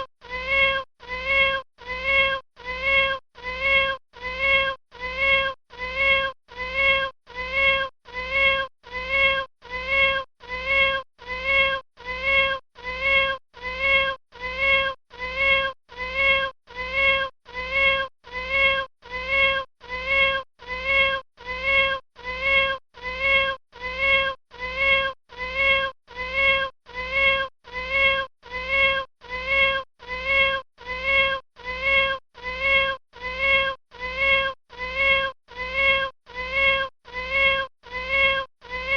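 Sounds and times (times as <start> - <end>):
kitten meowing: 0.3 - 38.9.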